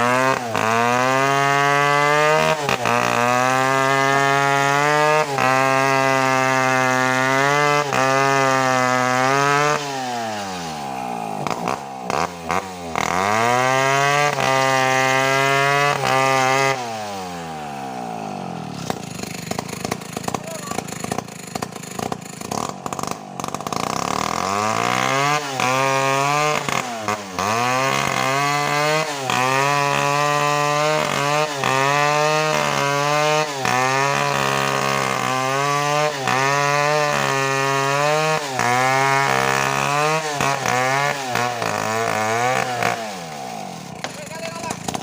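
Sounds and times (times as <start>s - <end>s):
chainsaw revving: 0.0s - 45.0s.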